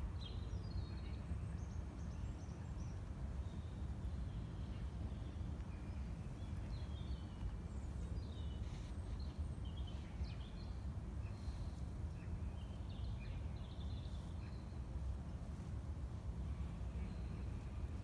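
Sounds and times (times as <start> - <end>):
low background rumble: 0.0 - 18.0
small birds chirping: 0.0 - 18.0.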